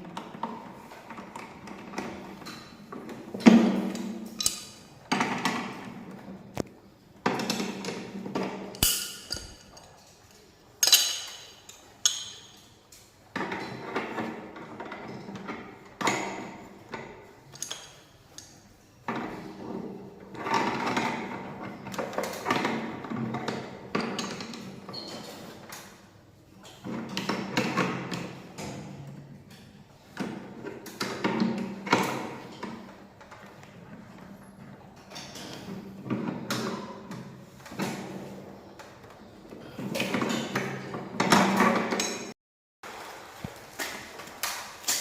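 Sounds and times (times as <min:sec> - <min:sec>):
tools knocking and clattering: 0:00.1 - 0:25.9, 0:39.9 - 0:42.4.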